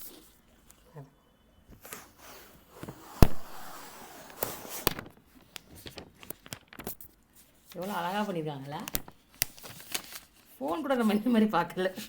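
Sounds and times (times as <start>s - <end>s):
packaging rustling: 2.9s - 10.6s.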